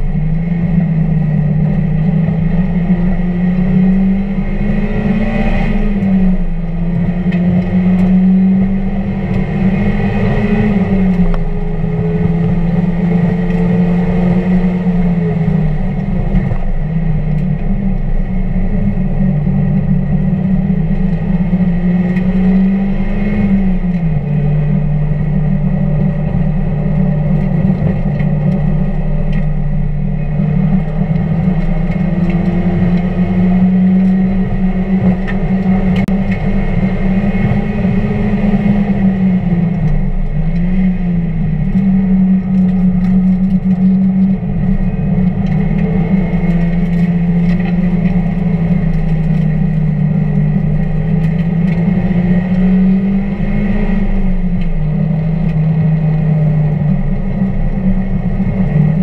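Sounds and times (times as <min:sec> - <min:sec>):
car engine running hard: 0:00.0 - 0:59.0
road and wind noise: 0:00.0 - 0:59.0.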